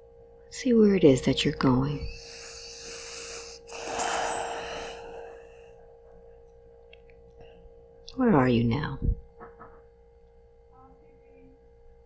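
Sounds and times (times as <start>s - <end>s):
faint hum: 0.0s - 12.0s
person breathing heavily: 2.1s - 5.9s.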